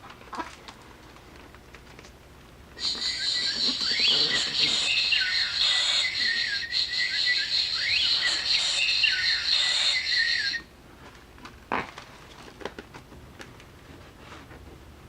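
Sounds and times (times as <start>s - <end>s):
buzzing and whistling from small speaker: 2.8s - 10.7s.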